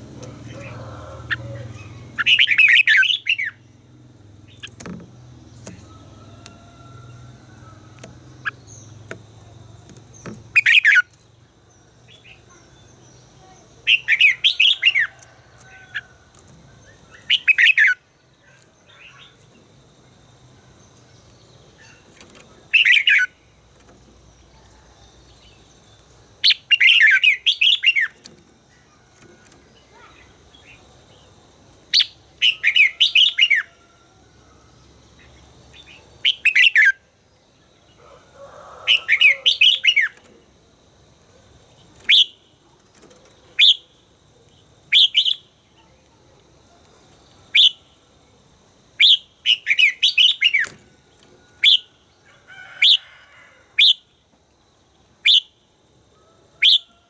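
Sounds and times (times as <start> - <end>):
bird singing warbling phrases: 0.2 - 3.8, 7.0 - 16.1, 16.8 - 19.5, 21.6 - 23.5, 26.4 - 33.8, 35.2 - 37.1, 38.9 - 40.4, 44.9 - 48.0, 49.0 - 50.8.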